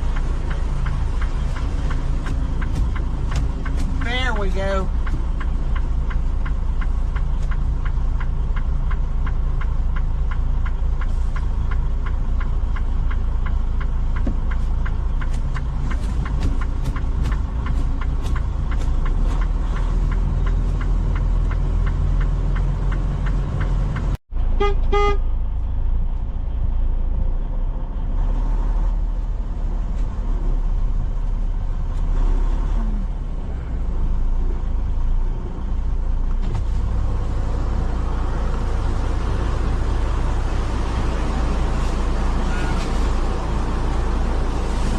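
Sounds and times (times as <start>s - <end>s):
truck diesel engine running: 0.0s - 28.1s, 33.8s - 44.9s
horn toot: 24.6s - 25.3s.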